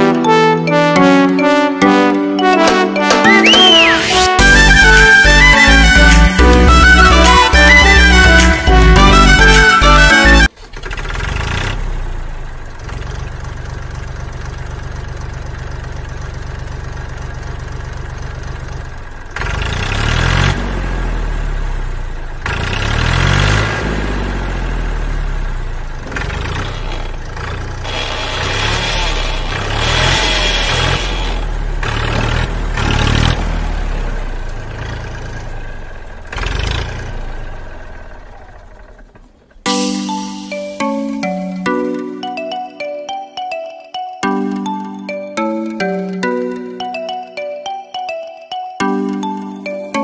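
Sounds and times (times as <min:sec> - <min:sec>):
engine idling and revving: 0:02.6 - 0:41.6.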